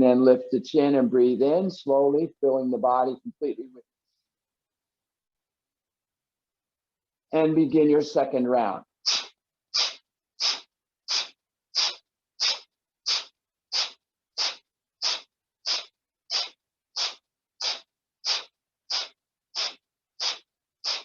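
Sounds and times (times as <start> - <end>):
forceful nasal exhales: 9.0 - 21.0.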